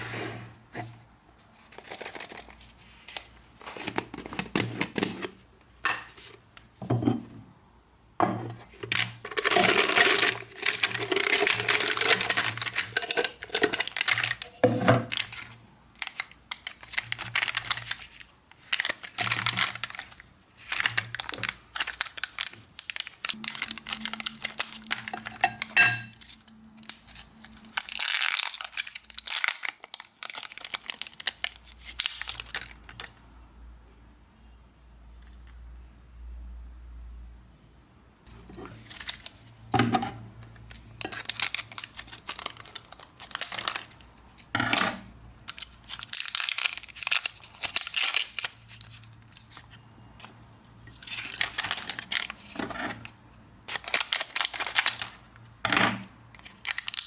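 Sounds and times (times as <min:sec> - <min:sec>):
plastic wrappers crinkling: 0:01.6 - 0:05.4, 0:08.8 - 0:33.2, 0:38.7 - 0:39.6, 0:40.4 - 0:44.5, 0:45.4 - 0:55.6, 0:56.3 - 0:57.0
hard candy clinking: 0:09.1 - 0:15.4, 0:18.8 - 0:31.5.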